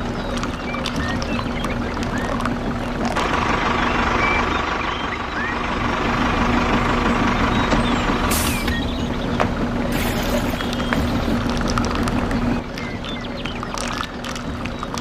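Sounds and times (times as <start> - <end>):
high whine: 0.0 - 14.7
short bird chirps: 7.3 - 11.4.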